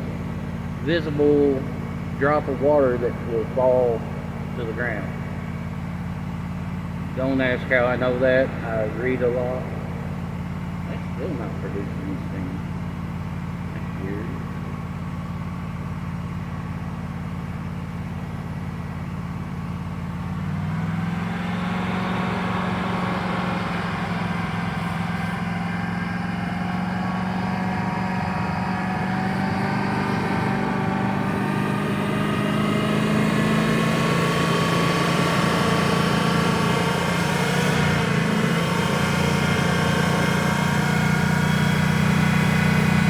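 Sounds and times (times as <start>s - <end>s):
engine running at raised revs: 0.0s - 43.0s.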